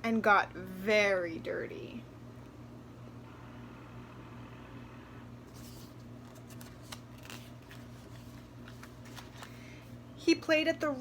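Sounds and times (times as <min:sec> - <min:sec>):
steady low hum: 0:00.0 - 0:11.0
paper rustling: 0:05.5 - 0:09.9.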